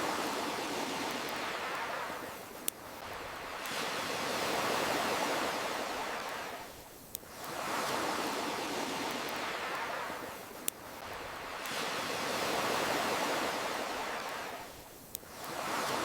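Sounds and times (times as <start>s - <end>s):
ocean waves washing: 0.0s - 16.0s
campfire pops: 6.7s - 7.6s, 14.7s - 15.6s.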